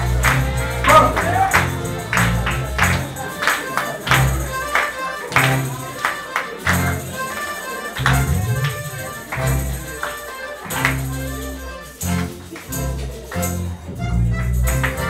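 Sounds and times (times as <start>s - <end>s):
accordion: 0.0s - 15.0s
guitar: 0.0s - 15.0s
tambourines and hand percussion: 0.0s - 15.0s.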